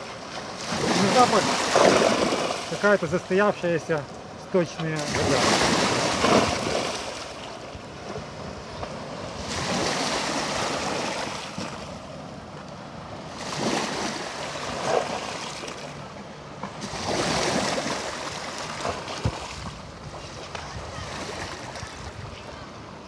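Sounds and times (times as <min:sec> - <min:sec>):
small waves washing onto shore: 0:00.0 - 0:23.0
wind on microphone: 0:18.8 - 0:22.9.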